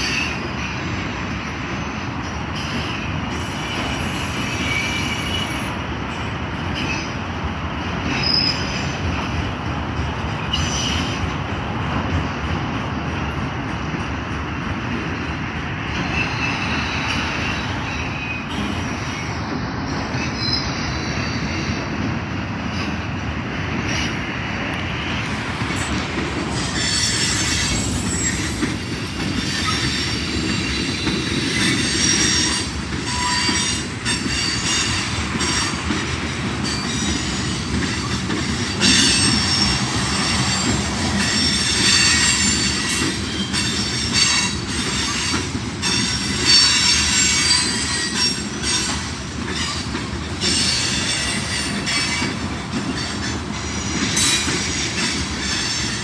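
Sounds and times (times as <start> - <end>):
train wheels rumbling on rails: 0.0 - 56.0
high-pitched wheel squeals: 31.6 - 35.6.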